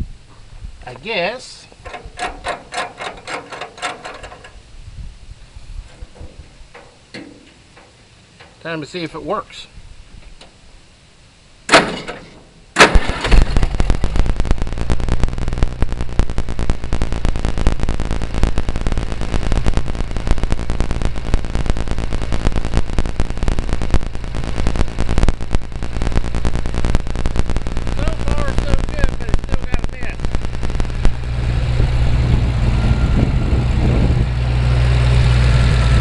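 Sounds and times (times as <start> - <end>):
tractor engine running: 1.7 - 4.8, 5.4 - 8.8, 11.7 - 36.0
starter cranking: 1.8 - 4.6.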